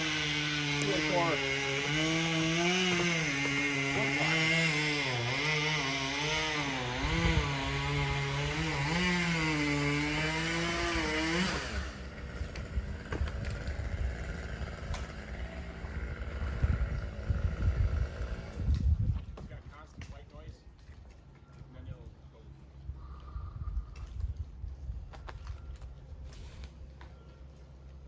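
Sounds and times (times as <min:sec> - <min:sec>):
chainsaw running: 0:00.0 - 0:19.4.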